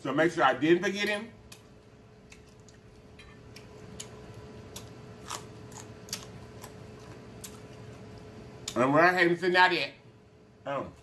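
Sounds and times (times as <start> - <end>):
man chewing with wet smacks: 1.5 - 8.8.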